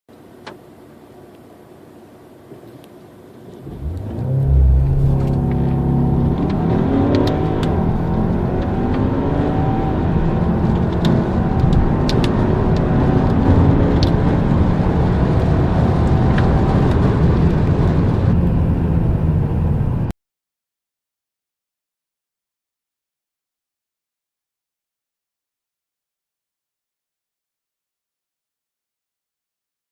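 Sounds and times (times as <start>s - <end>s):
car engine accelerating hard: 3.6s - 20.1s.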